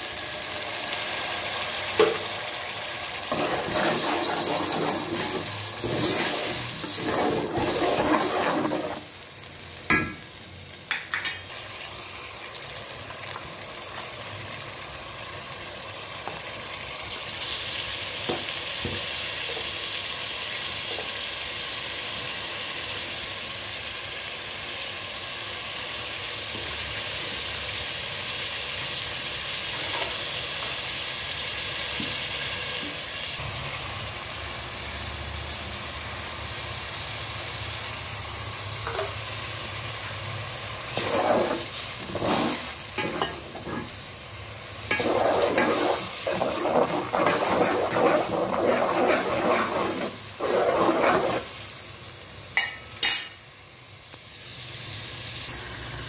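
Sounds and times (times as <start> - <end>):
paste sizzling in oil: 0.0 - 56.0
spoon scraping a metal pot: 3.3 - 9.1, 38.8 - 39.2, 41.0 - 44.0, 44.9 - 51.5.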